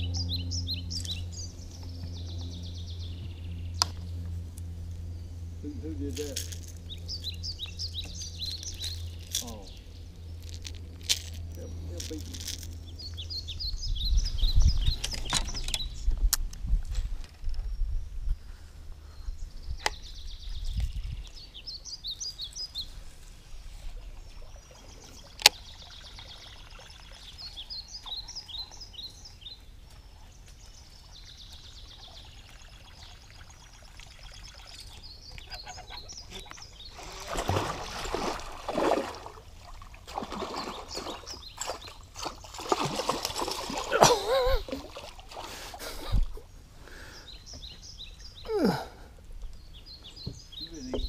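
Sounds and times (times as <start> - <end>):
birds chirping: 0.0 - 16.3, 17.3 - 51.0
water splashing and trickling: 5.7 - 13.4, 20.6 - 46.6.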